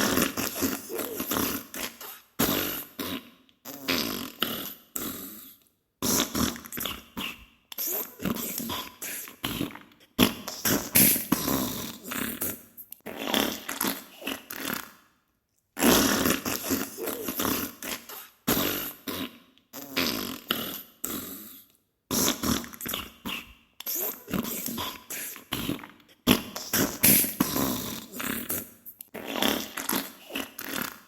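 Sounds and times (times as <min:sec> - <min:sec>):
wet sputtering farts: 0:09.5 - 0:14.9, 0:15.8 - 0:20.8, 0:22.1 - 0:24.8, 0:25.6 - 0:31.0.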